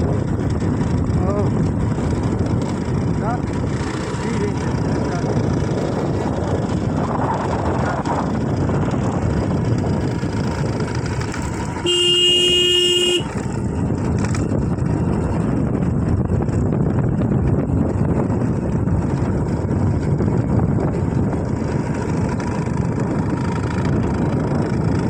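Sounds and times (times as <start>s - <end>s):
engine and wind rumble: 0.0s - 25.0s
vehicle horn blast: 11.8s - 13.4s.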